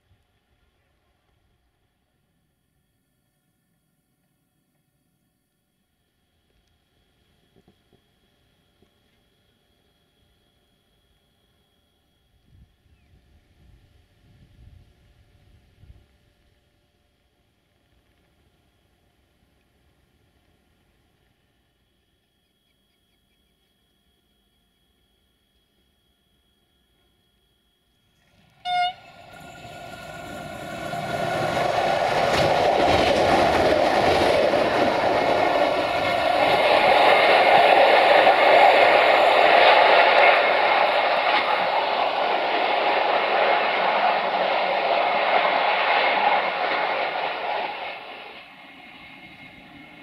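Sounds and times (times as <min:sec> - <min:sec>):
train engine and wheels on rails: 0:00.0 - 0:50.0
train horn blast: 0:28.6 - 0:29.5.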